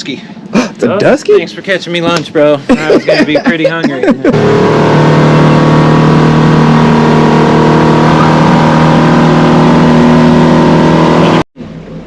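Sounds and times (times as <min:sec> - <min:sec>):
boat motor running: 0:02.7 - 0:12.0.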